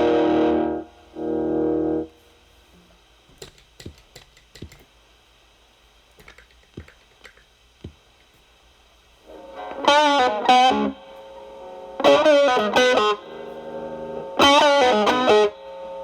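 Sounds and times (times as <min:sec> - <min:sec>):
distorted electric guitar chords: 0:00.0 - 0:02.2, 0:09.3 - 0:16.0
amplifier hiss: 0:00.0 - 0:16.0
guitar string clicks and taps: 0:03.4 - 0:04.9, 0:06.2 - 0:08.0.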